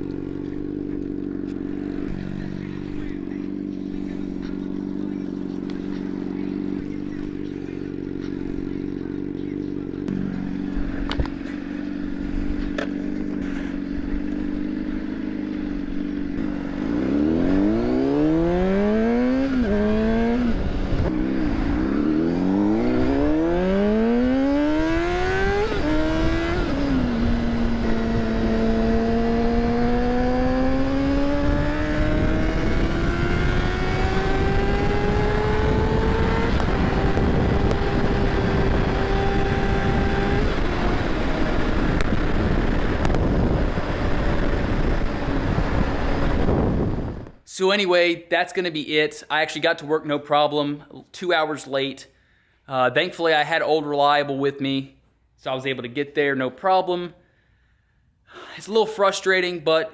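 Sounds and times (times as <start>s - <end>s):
vehicle engine idling and accelerating: 0.0s - 47.5s.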